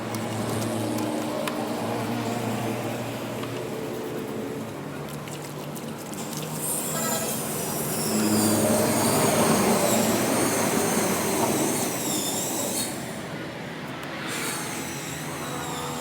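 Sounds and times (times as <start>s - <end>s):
power tool high-pitched whine: 6.6s - 13.4s, 14.1s - 16.0s.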